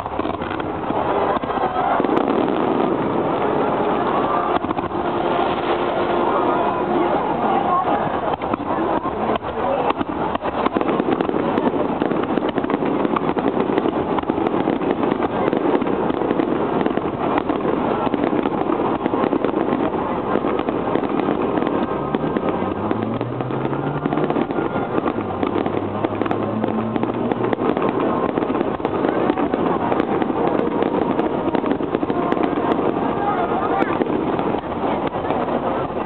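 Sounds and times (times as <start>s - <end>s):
fireworks crackling and banging: 0.0s - 36.0s.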